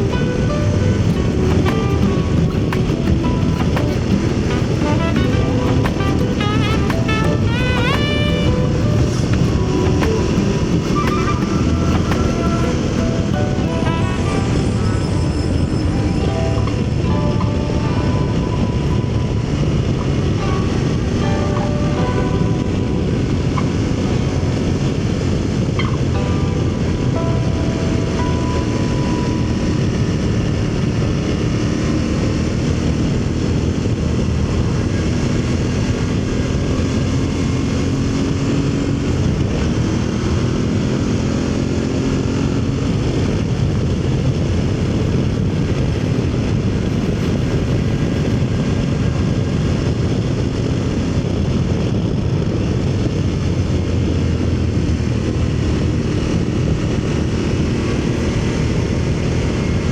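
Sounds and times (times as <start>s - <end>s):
motorcycle engine running: 0.0s - 14.9s, 30.2s - 51.6s
wind noise: 0.0s - 59.9s.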